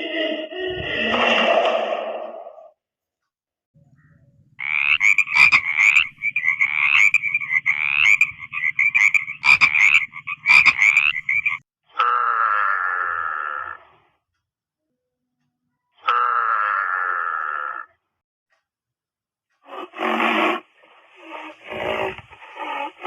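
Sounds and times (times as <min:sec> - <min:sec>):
frog croaking: 0:04.6 - 0:14.1, 0:16.0 - 0:18.1.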